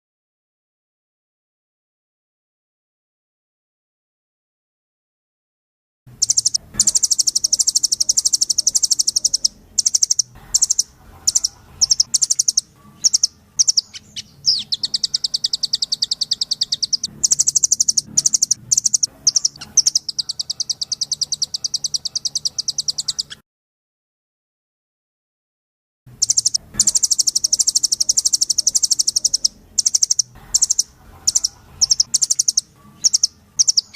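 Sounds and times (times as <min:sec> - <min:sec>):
bird chips: 0:06.2 - 0:23.4, 0:26.2 - 0:33.9
songbird trilling: 0:06.2 - 0:23.4, 0:26.2 - 0:33.9.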